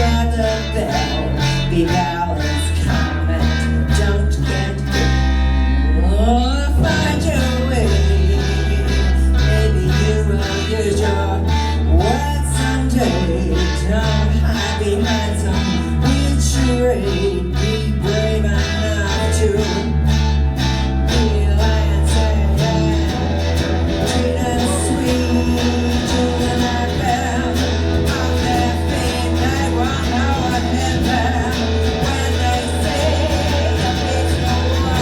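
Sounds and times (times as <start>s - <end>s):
live rock band: 0.0s - 35.0s
person singing: 0.0s - 35.0s.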